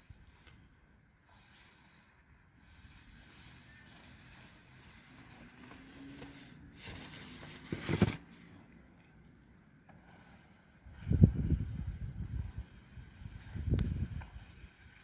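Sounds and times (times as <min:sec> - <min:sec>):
snow shovel scraping snow: 0:01.2 - 0:08.2.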